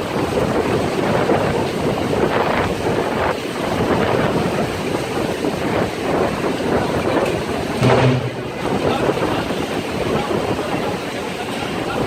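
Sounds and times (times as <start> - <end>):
storm wind gusting: 0.0 - 12.0
low hum: 7.8 - 8.9.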